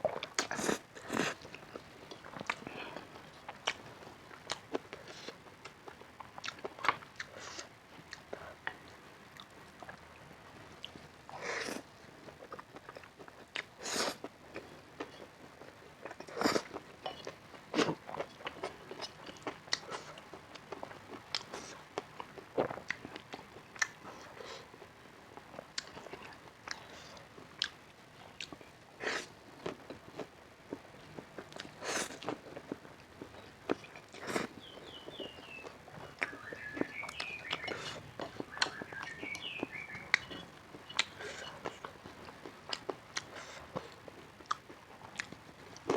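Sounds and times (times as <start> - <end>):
person chewing food: 0.0 - 45.9
bird chirping: 34.6 - 41.2.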